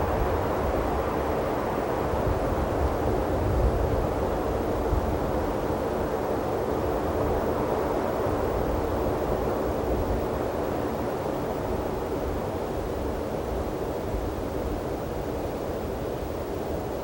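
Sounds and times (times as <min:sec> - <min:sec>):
wind rumble on microphone: 0:00.0 - 0:06.0.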